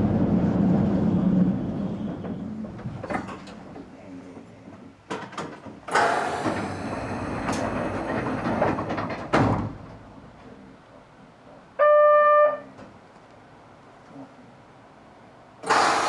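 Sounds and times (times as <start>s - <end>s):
doors shutting thud: 5.2s - 10.0s
train doors hissing and sliding: 5.6s - 10.3s, 15.6s - 16.0s.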